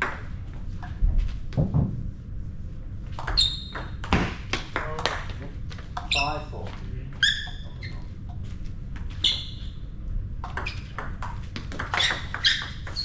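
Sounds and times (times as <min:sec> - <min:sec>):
ball pinging on table: 0:10.4 - 0:13.0.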